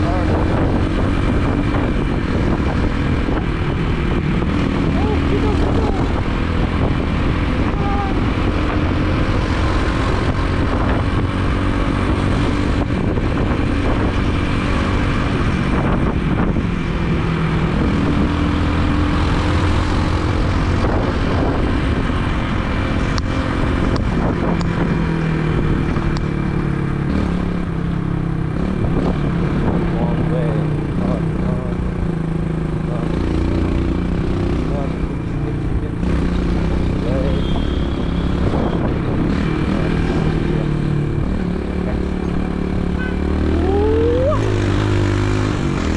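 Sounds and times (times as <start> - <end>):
wind noise: 0.0 - 30.2, 37.6 - 45.9
road noise: 0.0 - 45.9
motorbike engine running: 31.1 - 45.9.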